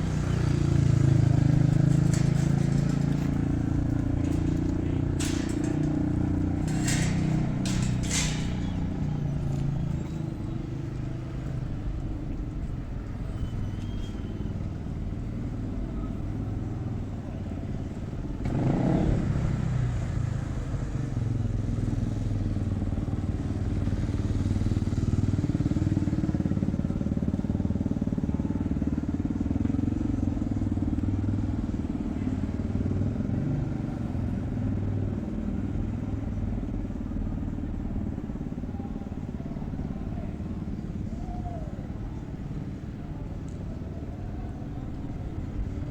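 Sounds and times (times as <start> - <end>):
vehicle passing close: 0.0 - 11.2
vehicle engines running: 0.0 - 45.9.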